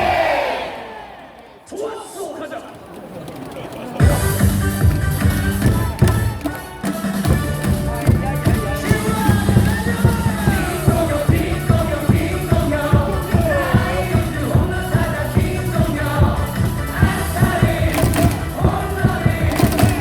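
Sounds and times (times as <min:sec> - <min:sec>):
cheer song over sound system: 0:04.0 - 0:20.0.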